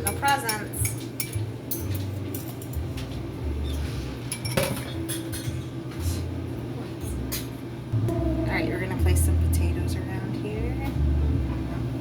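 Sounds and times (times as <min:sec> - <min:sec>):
utensils and dishes clinking: 0:00.0 - 0:06.3, 0:06.9 - 0:08.5.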